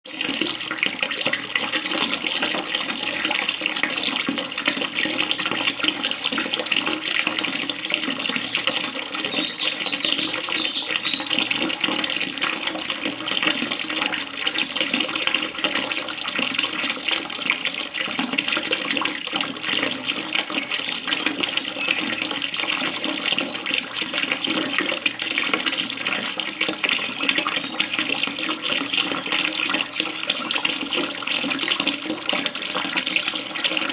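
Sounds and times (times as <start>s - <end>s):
water splashing and trickling: 0.0s - 33.9s
high bird chirps: 4.5s - 4.8s, 8.4s - 11.4s, 21.3s - 22.3s.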